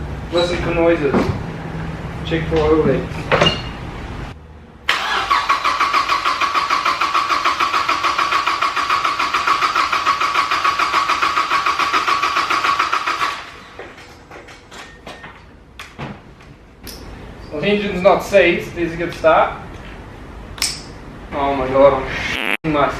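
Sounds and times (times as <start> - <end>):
engine cranking on starter motor: 4.9 - 13.8.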